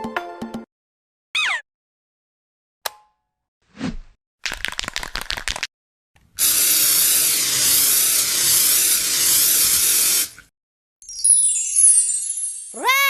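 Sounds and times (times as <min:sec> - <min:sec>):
loud steady hiss: 0:06.4 - 0:10.4.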